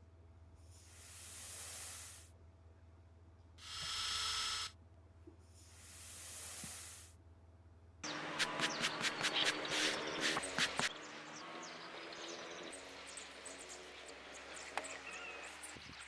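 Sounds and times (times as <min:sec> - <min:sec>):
bursts of hiss: 0:03.6 - 0:04.7, 0:08.4 - 0:10.9.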